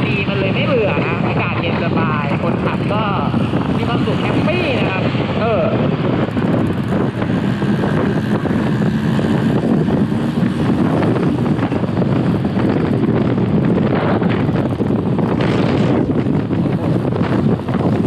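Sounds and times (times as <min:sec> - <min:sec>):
motorcycle engine running: 0:00.0 - 0:18.0
wind buffeting microphone: 0:00.0 - 0:18.0.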